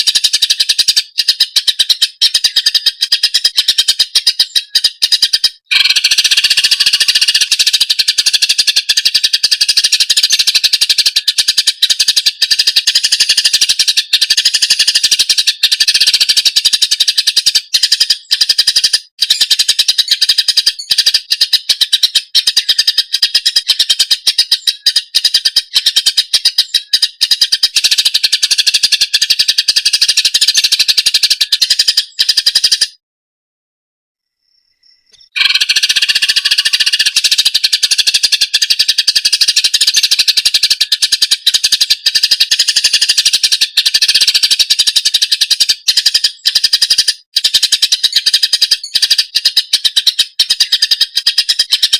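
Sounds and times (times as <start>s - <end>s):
bird singing chattering song: 0.0s - 33.0s, 34.8s - 51.9s.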